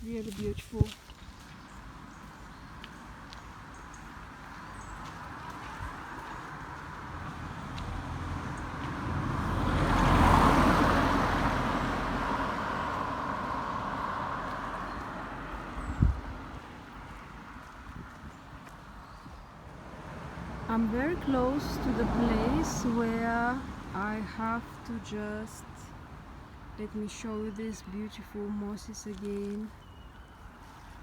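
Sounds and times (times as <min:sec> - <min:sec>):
car passing: 0:03.1 - 0:26.8.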